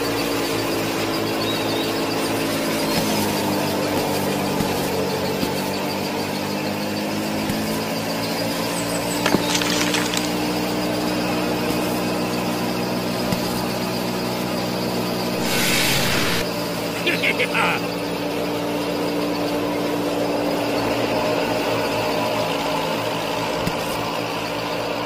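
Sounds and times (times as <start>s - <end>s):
small motor humming: 0.0s - 17.0s
grains pouring into toy trolley: 9.2s - 10.4s.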